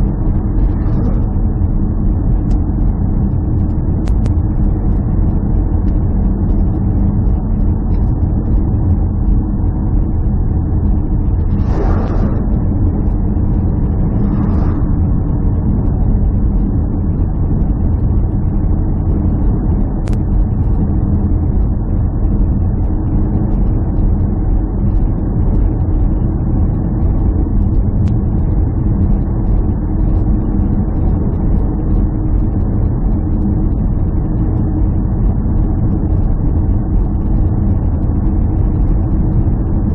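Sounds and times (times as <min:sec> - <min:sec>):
motor vehicle rumble: 0:00.0 - 0:02.1, 0:11.0 - 0:16.7.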